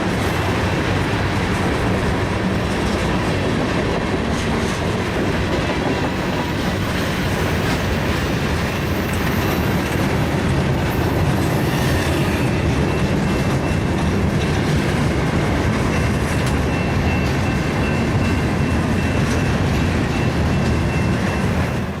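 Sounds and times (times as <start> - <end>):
train wheels clattering over rails: 0.0 - 22.0
high squeal from train wheels: 5.9 - 13.9.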